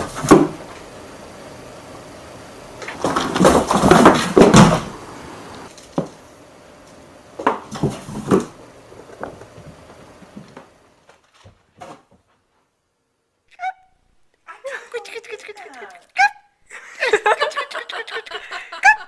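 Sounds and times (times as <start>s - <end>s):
household objects clattering: 2.8s - 6.3s, 7.4s - 10.7s.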